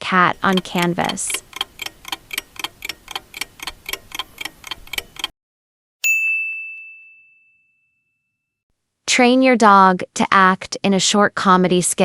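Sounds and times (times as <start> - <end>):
clock ticking: 0.0 - 5.3
bell ding: 6.0 - 8.4.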